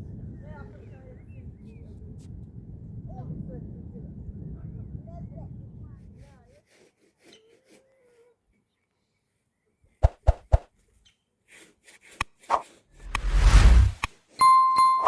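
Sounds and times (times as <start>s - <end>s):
burst of noise: 13.0s - 14.0s.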